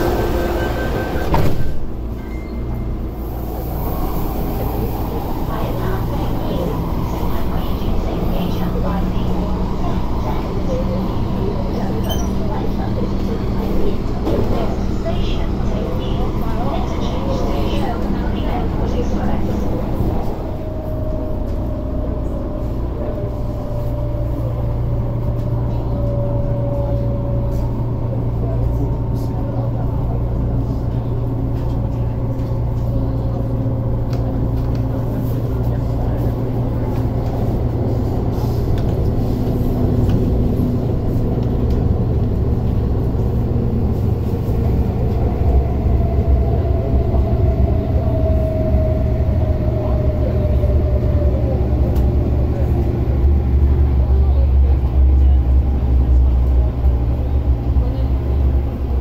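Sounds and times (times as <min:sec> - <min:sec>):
train whine: 0:00.0 - 0:28.9, 0:29.6 - 0:59.0
train low rumble: 0:00.0 - 0:59.0.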